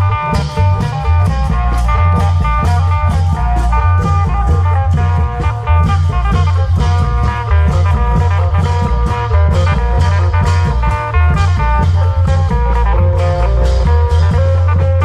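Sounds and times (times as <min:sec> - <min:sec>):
drums and bass beat: 0:00.0 - 0:15.0.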